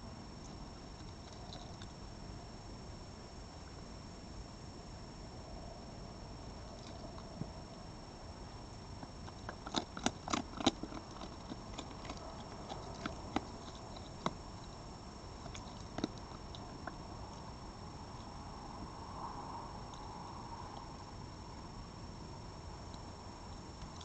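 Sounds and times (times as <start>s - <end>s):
animal crunching food: 0.4s - 2.0s, 6.7s - 7.5s, 8.9s - 17.5s, 22.8s - 24.0s.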